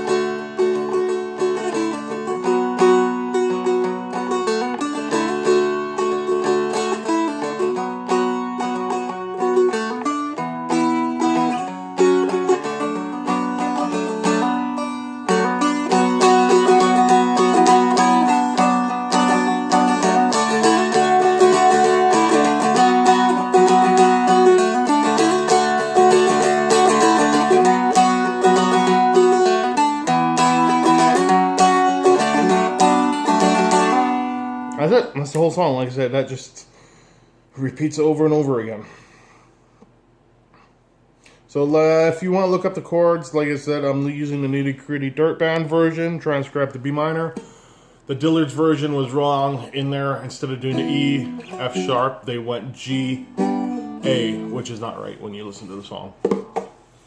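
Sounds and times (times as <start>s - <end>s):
dulcimer flatpicked melody: 0.0s - 34.8s, 50.8s - 52.1s.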